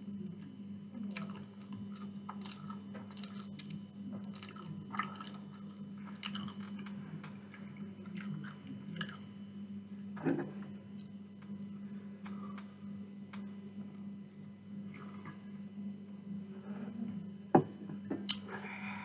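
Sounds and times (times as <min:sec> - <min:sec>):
low hum: 0:00.0 - 0:19.0
chewing food: 0:01.0 - 0:09.3.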